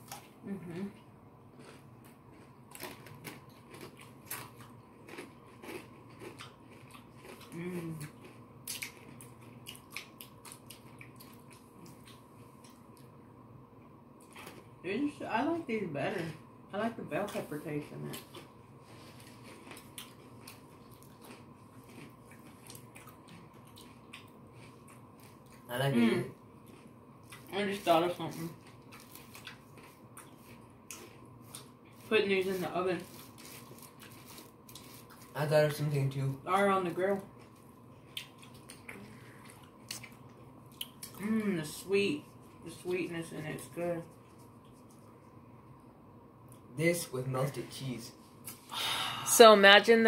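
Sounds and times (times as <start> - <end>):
crunchy biting and chewing: 1.5 - 13.0, 18.1 - 26.0, 26.6 - 32.1, 33.0 - 35.5.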